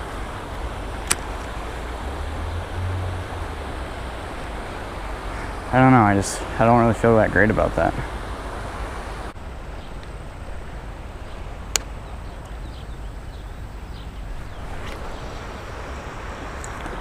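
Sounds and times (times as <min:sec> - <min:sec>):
water rushing over spillway: 0:00.0 - 0:09.4.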